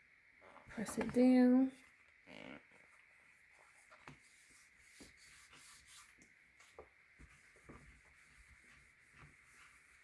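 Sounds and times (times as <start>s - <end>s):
faint rubbing: 2.3s - 10.0s.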